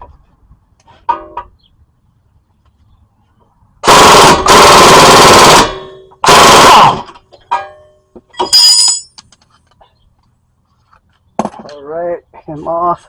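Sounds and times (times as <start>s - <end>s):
loose metal parts ringing: 7.4s - 9.3s
metallic clinks: 7.5s - 9.3s.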